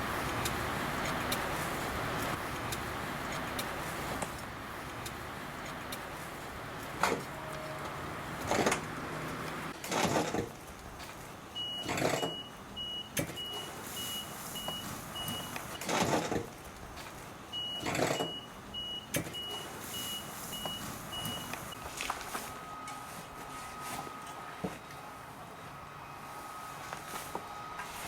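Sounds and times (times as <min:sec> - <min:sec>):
vehicle reversing beeper: 0:11.6 - 0:15.8, 0:17.5 - 0:24.6, 0:25.8 - 0:28.0.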